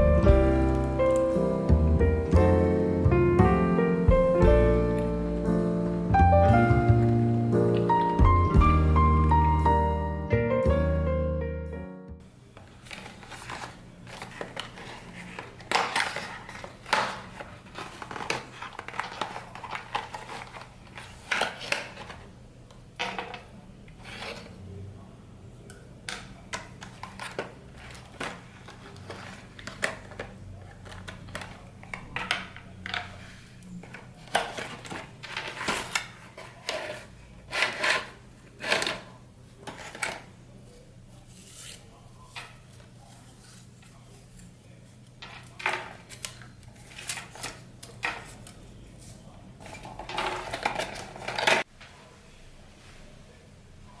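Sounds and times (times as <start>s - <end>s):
packaging rustling: 12.6s - 22.3s, 26.8s - 40.3s, 49.6s - 51.7s.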